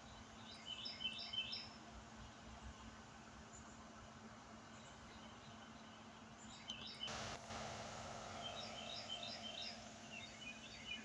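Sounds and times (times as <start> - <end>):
faint bird chirps: 4.7 - 7.2, 8.2 - 11.0.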